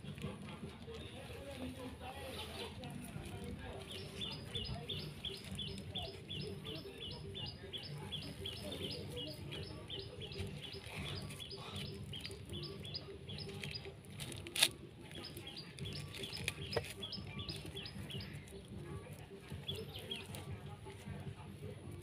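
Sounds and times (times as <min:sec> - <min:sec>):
small bird chirping: 0:03.8 - 0:14.0, 0:15.0 - 0:18.6.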